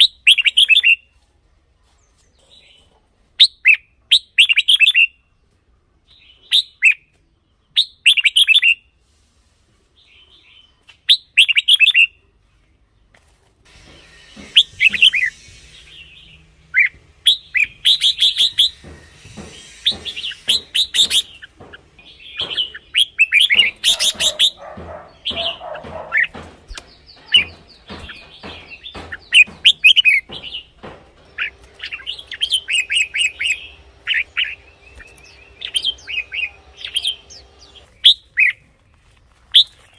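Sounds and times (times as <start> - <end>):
birds singing warbled phrases: 13.9 - 39.0.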